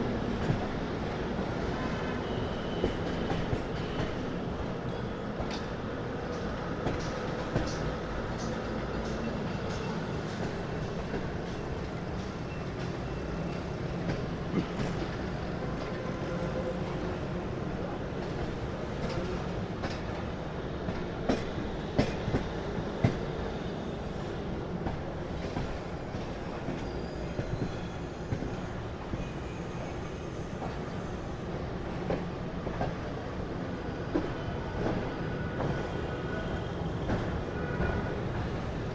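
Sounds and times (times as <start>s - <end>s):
train rumbling along track: 0.0s - 38.9s.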